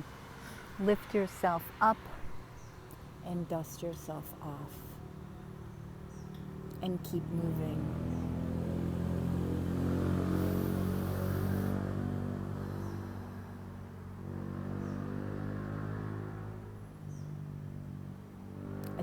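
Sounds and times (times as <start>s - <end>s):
vehicle engine passing by: 4.3s - 19.0s.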